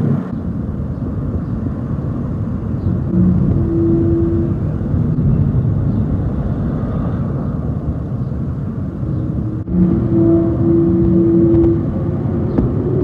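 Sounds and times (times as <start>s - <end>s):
wind rumbling on microphone: 0.0s - 13.0s
trumpet-like drone from sky: 2.8s - 7.6s, 8.2s - 13.0s.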